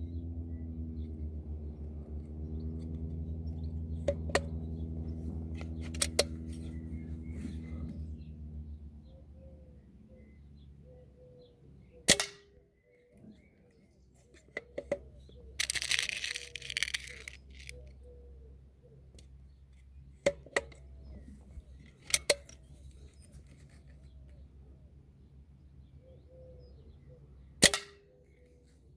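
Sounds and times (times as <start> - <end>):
rifle handling clicks and rustle: 5.4 - 6.8, 14.2 - 17.9, 20.3 - 24.4.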